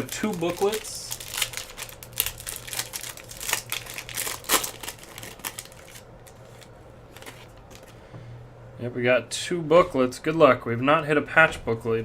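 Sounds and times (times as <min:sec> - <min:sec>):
wrapper crinkling and tearing: 0:00.0 - 0:07.9
low steady hum: 0:00.0 - 0:12.0.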